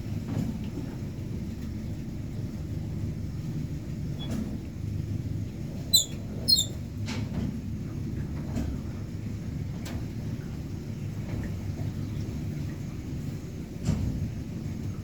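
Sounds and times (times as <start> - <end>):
animal squeaky calls: 5.9 - 6.8.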